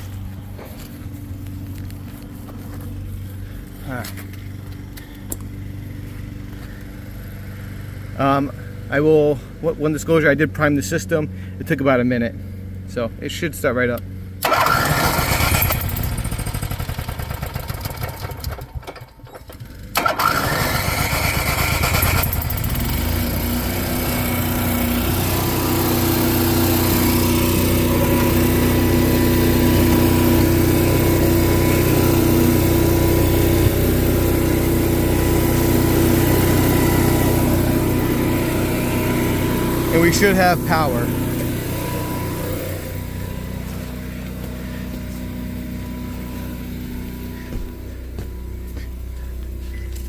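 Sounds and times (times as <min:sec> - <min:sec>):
generator engine running: 0:00.0 - 0:50.0
generator engine cranking on starter: 0:14.0 - 0:50.0.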